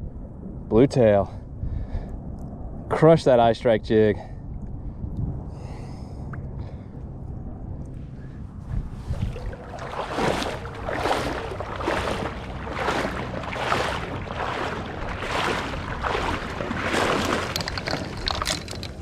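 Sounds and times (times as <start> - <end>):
water sloshing and splashing: 8.6 - 19.0.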